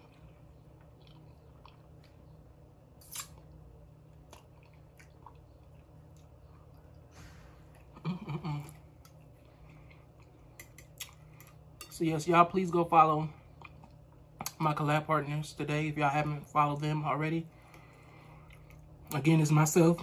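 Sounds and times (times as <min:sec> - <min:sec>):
person chewing food: 0:00.0 - 0:11.9, 0:13.4 - 0:14.6, 0:17.6 - 0:19.2.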